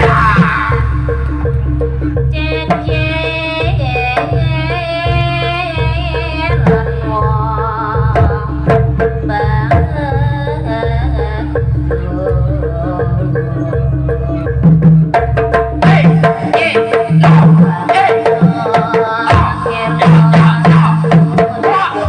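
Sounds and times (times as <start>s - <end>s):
driving drum rhythm: 0.0s - 22.0s
high wavering melody: 0.0s - 22.0s
pitched percussion pattern: 0.0s - 22.0s.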